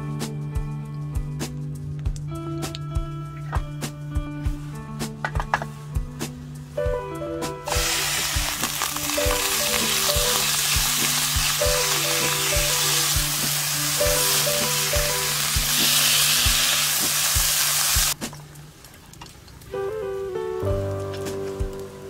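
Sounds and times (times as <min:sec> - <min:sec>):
meat sizzling in hot oil: 0:07.7 - 0:18.2
spatula turning meat: 0:07.7 - 0:18.2.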